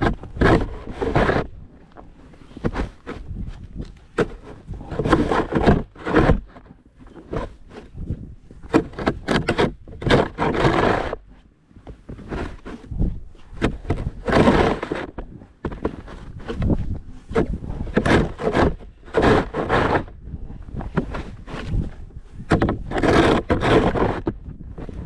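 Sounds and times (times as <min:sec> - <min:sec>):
snow shovel scraping: 0:00.0 - 0:01.6, 0:04.2 - 0:06.5, 0:08.7 - 0:11.2, 0:12.1 - 0:20.1, 0:20.7 - 0:25.0.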